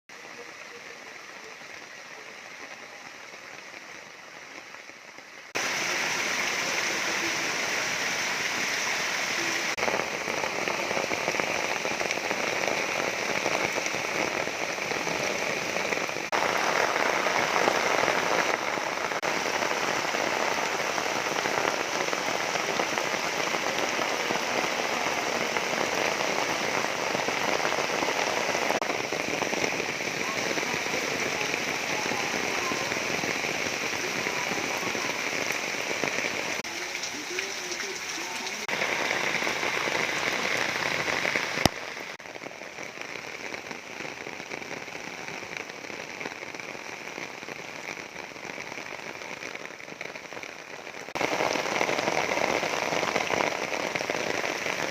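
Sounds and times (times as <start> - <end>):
waterfall rushing: 5.5 - 42.2, 51.1 - 54.9.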